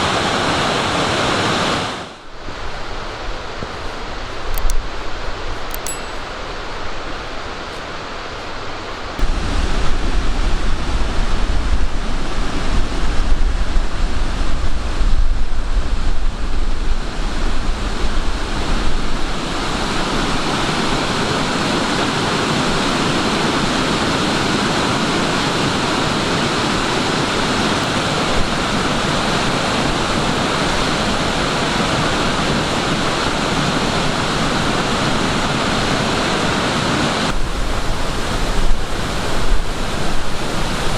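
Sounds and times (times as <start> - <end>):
wind rumble on microphone: 9.2 - 23.3, 27.9 - 40.9.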